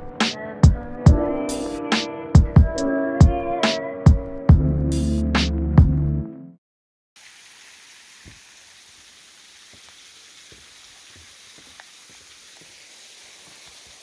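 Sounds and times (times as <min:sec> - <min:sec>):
water drips and splashes: 0:07.2 - 0:14.0
waterfall hiss: 0:07.2 - 0:14.0.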